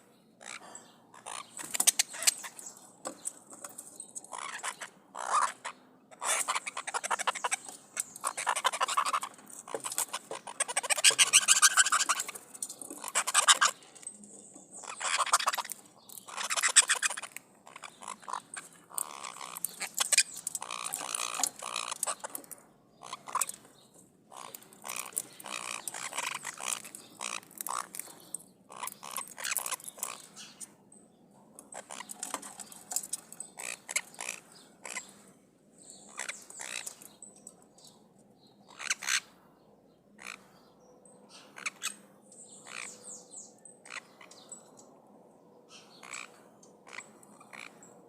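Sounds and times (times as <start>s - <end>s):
parrots screeching: 0.4s - 2.6s, 4.3s - 12.4s, 13.0s - 13.8s, 14.8s - 22.3s, 23.0s - 23.6s, 24.3s - 28.0s, 28.7s - 30.5s, 33.6s - 35.1s, 36.1s - 37.0s, 38.7s - 39.3s, 40.2s - 40.4s, 41.6s - 42.0s, 42.6s - 43.0s, 46.0s - 47.8s.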